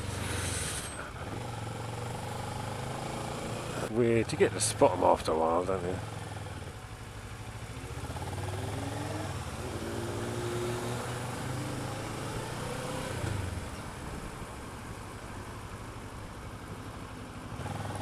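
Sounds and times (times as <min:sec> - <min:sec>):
motorcycle engine accelerating: 0:00.0 - 0:03.9, 0:05.9 - 0:13.8, 0:17.5 - 0:18.0.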